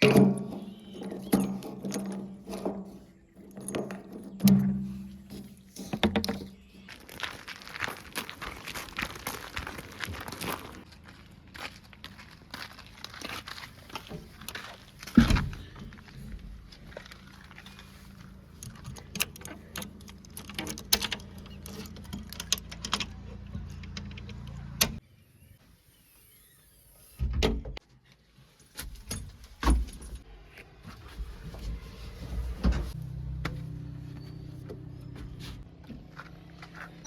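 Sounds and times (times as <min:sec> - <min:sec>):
clanks and rattles: 0:00.0 - 0:06.9, 0:13.2 - 0:25.0
diesel engine running: 0:15.6 - 0:25.0, 0:31.9 - 0:37.0.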